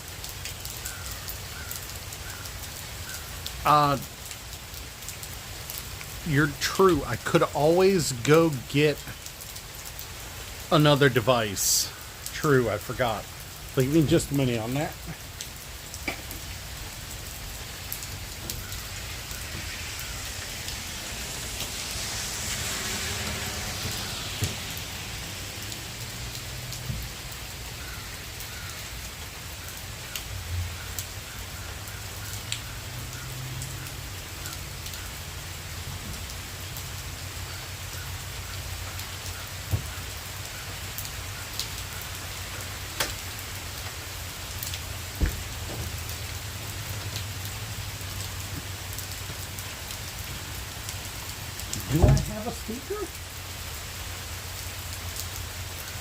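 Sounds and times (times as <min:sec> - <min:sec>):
steady rain hiss: 0:00.0 - 0:56.0
sharp drip ticks: 0:27.8 - 0:35.2.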